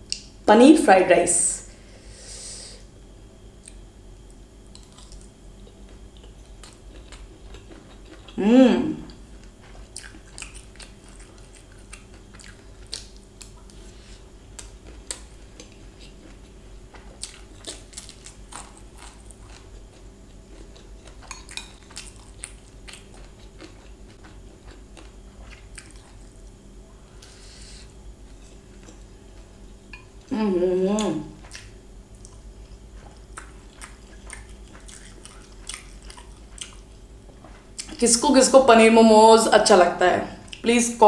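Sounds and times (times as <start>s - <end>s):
faint steady hum: 0.0s - 41.0s
wet chewing mouth sounds: 4.7s - 8.4s, 9.0s - 13.8s, 14.6s - 26.3s, 33.0s - 38.0s.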